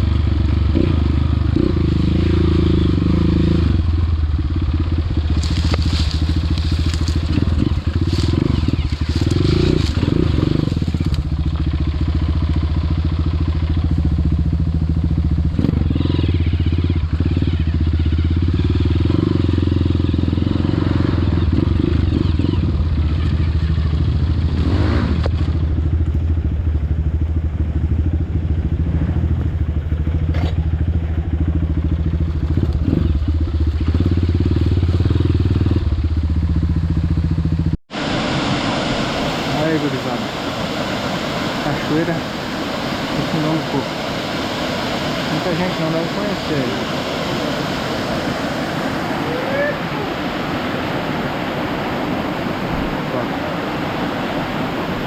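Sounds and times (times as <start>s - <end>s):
motorcycle engine running: 0.0s - 55.0s
crackling and scraping: 5.3s - 11.3s.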